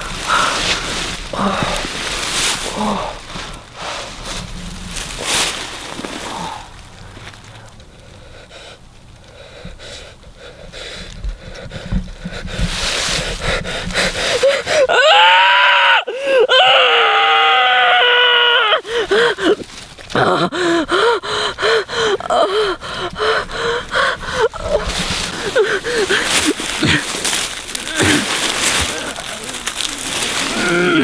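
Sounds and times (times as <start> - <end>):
man gasping breaths: 6.2 - 14.9, 18.8 - 29.4
man screaming: 14.9 - 18.8.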